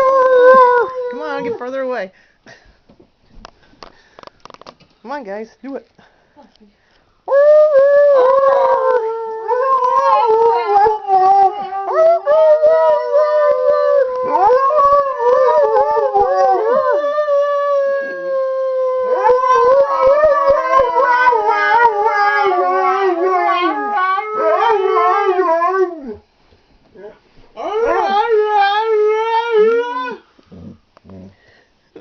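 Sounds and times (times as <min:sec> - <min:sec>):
dogs howling in chorus: 0:07.3 - 0:26.2, 0:27.6 - 0:30.2.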